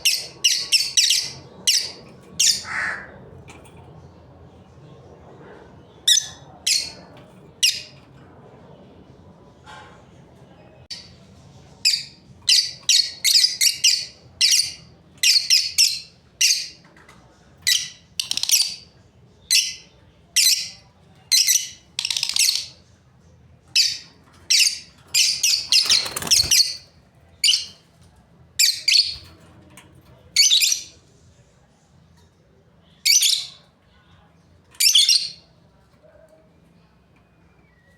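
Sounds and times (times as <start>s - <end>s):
lovebirds chirping and squawking: 0.0s - 3.6s, 17.7s - 22.8s, 23.7s - 27.9s, 28.6s - 29.4s.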